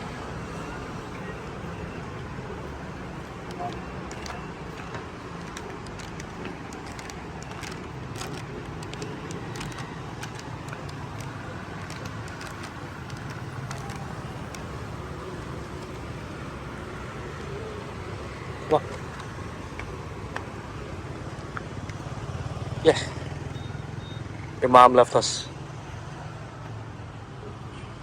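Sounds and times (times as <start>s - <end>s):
road vehicles rumbling past: 0.0s - 28.0s
scattered clicks and knocks: 3.4s - 14.8s.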